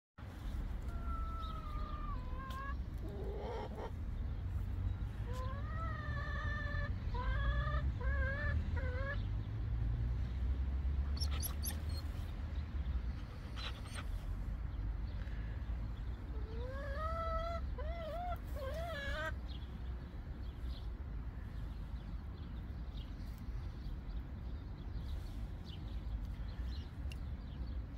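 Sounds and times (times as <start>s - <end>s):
hens clucking and calling: 0.8s - 4.0s, 5.2s - 9.2s, 16.2s - 19.4s.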